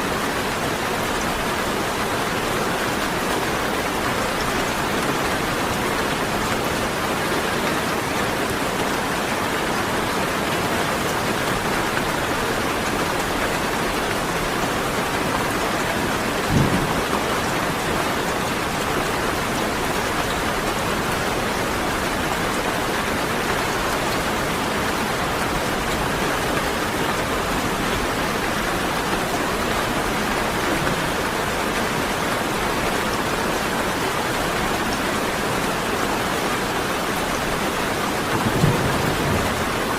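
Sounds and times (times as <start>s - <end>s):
steady rain falling: 0.0s - 39.9s
low thump: 16.5s - 17.0s.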